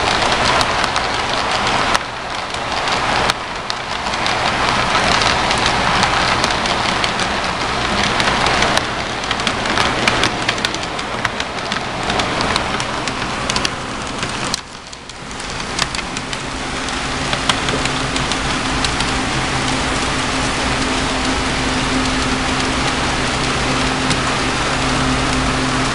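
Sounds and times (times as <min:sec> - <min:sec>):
low motor hum: 0:00.0 - 0:25.9
model train wheels clattering: 0:00.0 - 0:25.9.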